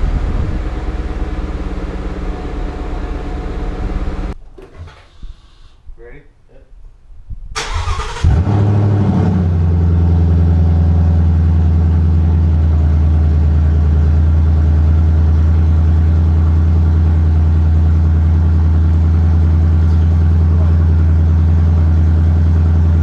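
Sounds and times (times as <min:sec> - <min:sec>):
car engine idling: 0:00.0 - 0:04.4, 0:09.5 - 0:23.0
car engine starting and revving: 0:00.0 - 0:04.4, 0:07.6 - 0:12.8.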